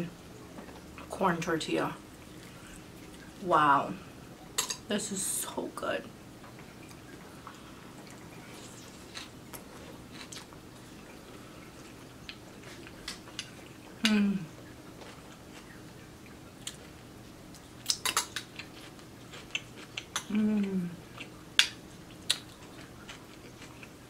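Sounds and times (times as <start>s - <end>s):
soft chewing: 2.1s - 3.4s, 6.4s - 24.0s
person humming: 14.0s - 14.5s, 20.3s - 21.0s.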